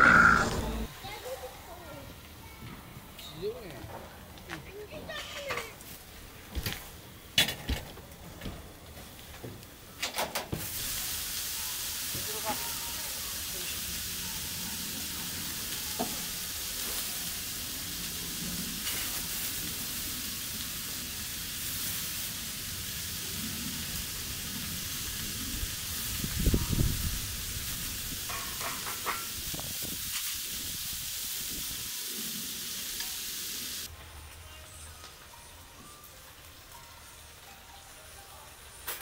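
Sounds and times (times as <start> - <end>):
food sizzling in a hot pan: 10.6 - 33.9.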